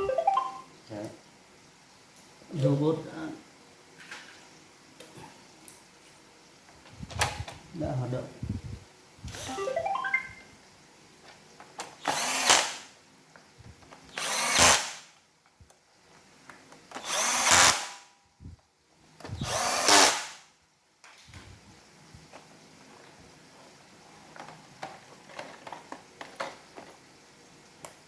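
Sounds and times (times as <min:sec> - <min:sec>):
vacuum robot motor whirring: 0:12.0 - 0:12.8, 0:14.1 - 0:14.9, 0:17.0 - 0:17.9, 0:19.3 - 0:20.2.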